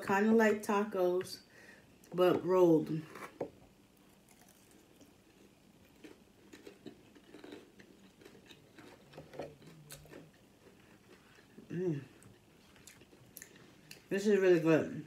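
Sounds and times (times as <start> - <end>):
faint crunchy chewing: 4.0 - 14.1.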